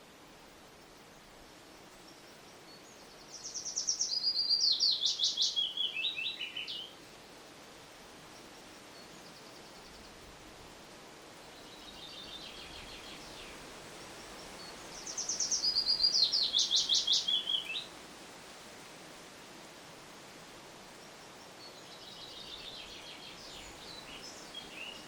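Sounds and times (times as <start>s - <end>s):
steady background hiss: 0.0s - 25.0s
songbirds singing: 1.9s - 7.4s, 8.4s - 10.3s, 11.4s - 17.9s, 20.9s - 25.0s.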